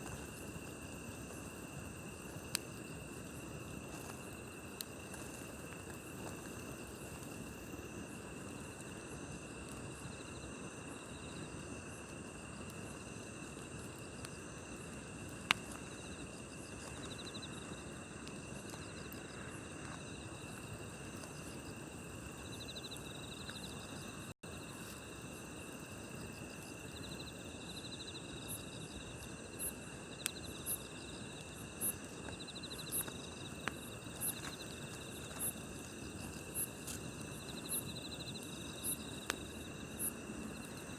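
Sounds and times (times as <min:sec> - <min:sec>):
campfire hissing: 0:00.0 - 0:40.9
crickets trilling: 0:00.0 - 0:40.9
fire crackle: 0:00.0 - 0:40.9.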